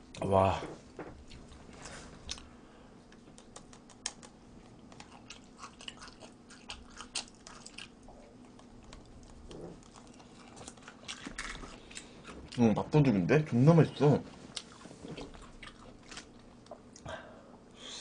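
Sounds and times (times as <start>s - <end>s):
person chewing: 1.2s - 2.5s, 3.1s - 12.7s, 14.5s - 17.1s.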